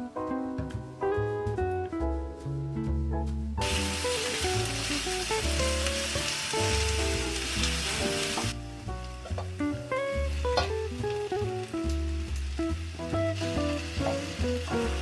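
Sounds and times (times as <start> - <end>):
light background music: 0.0 - 15.0
onions sizzling in frying pan: 3.6 - 15.0.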